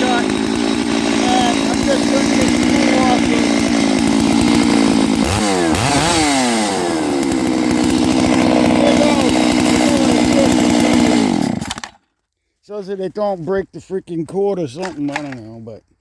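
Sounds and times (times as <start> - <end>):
chainsaw running at high revs: 0.0 - 12.0.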